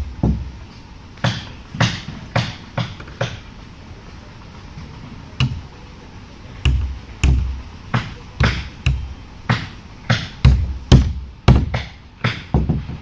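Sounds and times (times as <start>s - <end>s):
hammer strikes: 1.2s - 3.4s, 5.4s - 5.7s, 6.6s - 13.0s.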